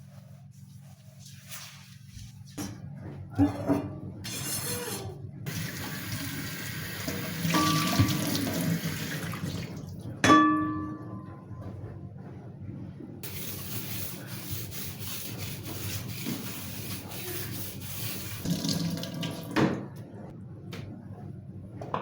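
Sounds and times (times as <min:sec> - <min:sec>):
tap running into a sink: 0:07.0 - 0:09.8.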